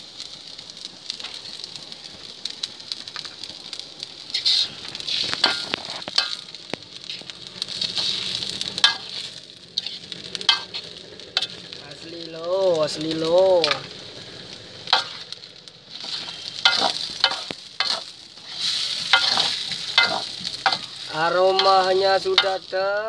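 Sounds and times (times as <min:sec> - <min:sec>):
egg and rice sizzling in wok: 0:00.0 - 0:23.0
metal spoon scraping a pan: 0:04.3 - 0:06.4, 0:07.9 - 0:10.8, 0:14.9 - 0:15.3, 0:15.9 - 0:22.6.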